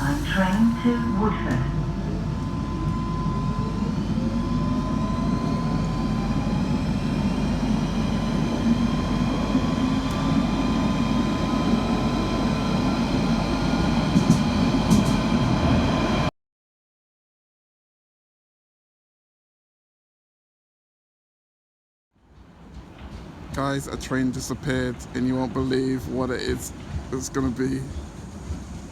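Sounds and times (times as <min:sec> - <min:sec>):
train wheels rumbling on rails: 0:00.0 - 0:16.3, 0:22.2 - 0:28.9.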